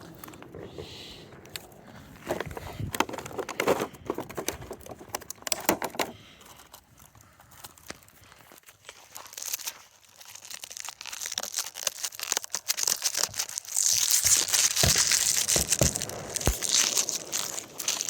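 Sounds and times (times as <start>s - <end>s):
plastic packaging crinkling: 6.6s - 18.0s.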